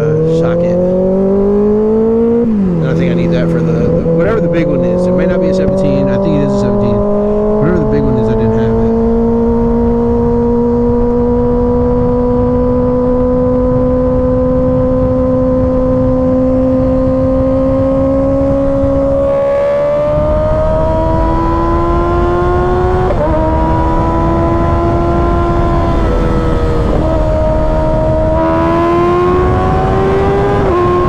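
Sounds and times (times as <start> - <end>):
low rush: 0.0 - 16.5
motorcycle engine running: 0.0 - 31.0.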